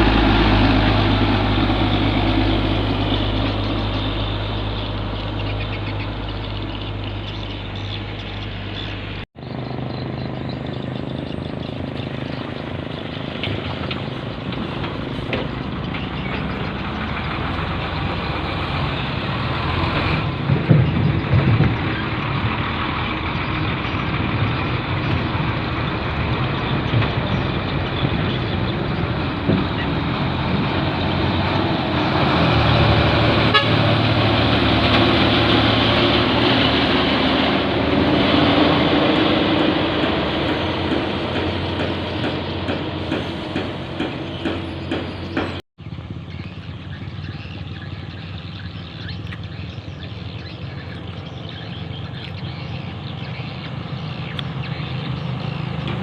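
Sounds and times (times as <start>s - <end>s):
truck diesel engine running: 0.0s - 56.0s
truck horn toots: 33.0s - 35.0s.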